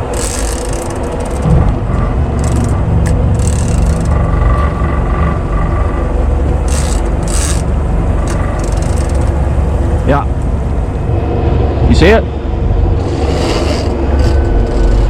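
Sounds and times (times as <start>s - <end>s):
boat engine running: 0.0s - 11.8s, 12.4s - 15.0s.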